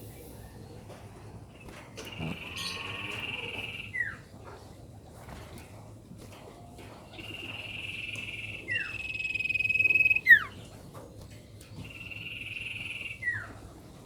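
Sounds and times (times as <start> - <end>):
bird whistling: 8.7 - 10.5.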